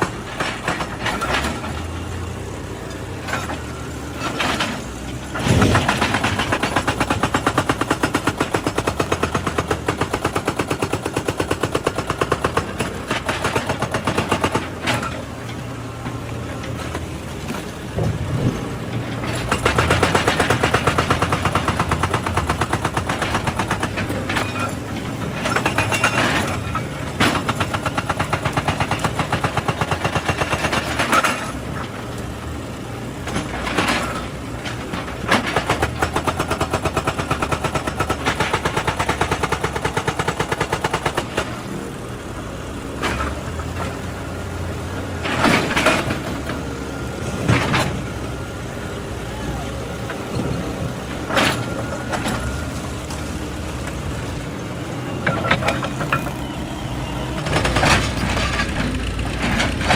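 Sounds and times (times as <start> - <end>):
hydraulic breaker hammering rock: 0.0 - 1.9, 3.2 - 15.3, 19.2 - 31.9, 33.2 - 41.7
excavator diesel engine under load: 0.0 - 59.9.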